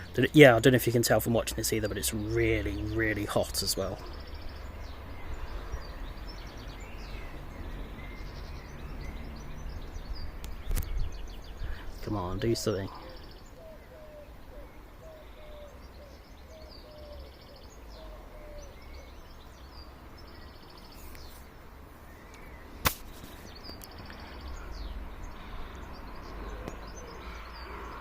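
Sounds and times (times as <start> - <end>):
birds chirping: 0.0 - 28.0
sharp click: 22.3 - 24.0.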